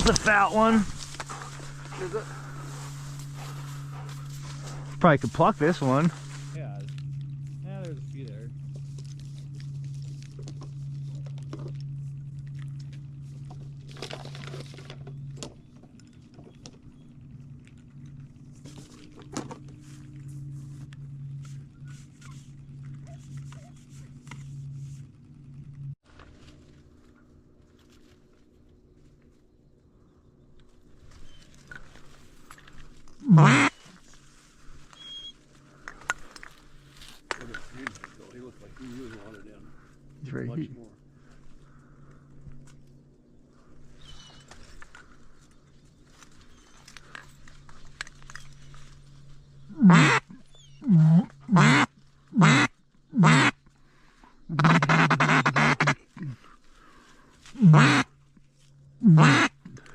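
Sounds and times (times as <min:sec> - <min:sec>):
faint low hum: 0:00.0 - 0:59.9
duck quack: 0:33.2 - 0:33.8, 0:49.8 - 0:50.2, 0:50.9 - 0:53.5, 0:54.5 - 0:56.0, 0:57.6 - 0:58.1, 0:59.0 - 0:59.5.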